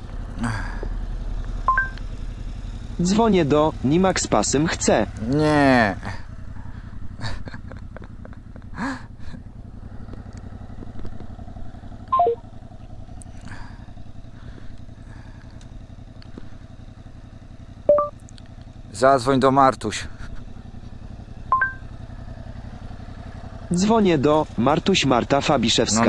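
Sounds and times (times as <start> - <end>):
motorcycle engine idling: 0.0 - 26.0
intercom descending beeps: 12.1 - 12.4, 17.9 - 18.1.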